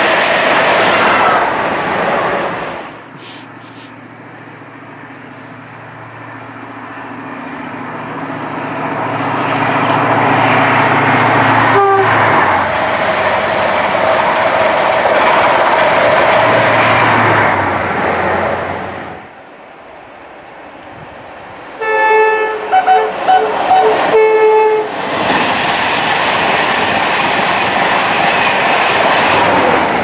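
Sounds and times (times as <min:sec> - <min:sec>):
train passing at speed: 0:00.0 - 0:30.0
train horn toot: 0:11.7 - 0:12.4, 0:21.8 - 0:24.9.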